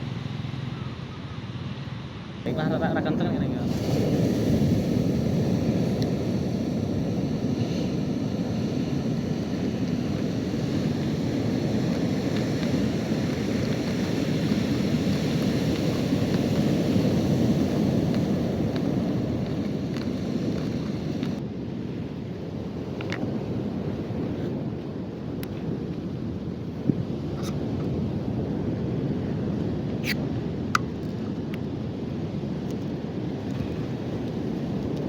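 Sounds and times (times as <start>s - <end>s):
ocean surf breaking: 2.4s - 21.4s
wind buffeting microphone: 2.4s - 35.0s.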